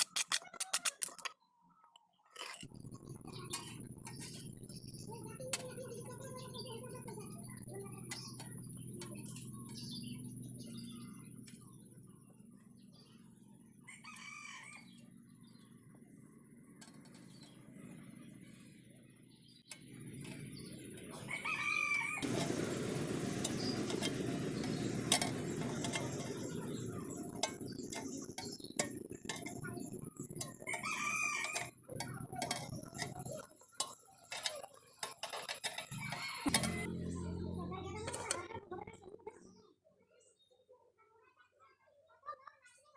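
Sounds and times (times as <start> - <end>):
chickens calling: 21.0 - 33.4, 35.9 - 36.9
rooster calling: 21.2 - 22.3, 30.7 - 31.7, 35.9 - 36.9.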